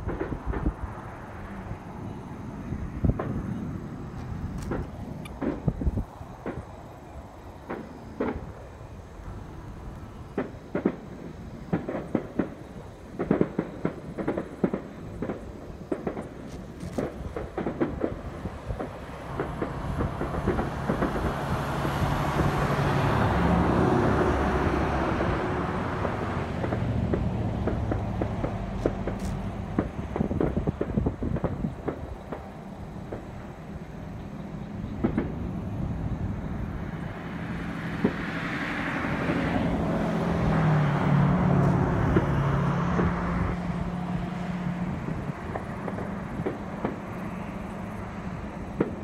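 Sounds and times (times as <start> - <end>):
fireworks bangs and pops: 0.0 - 49.0.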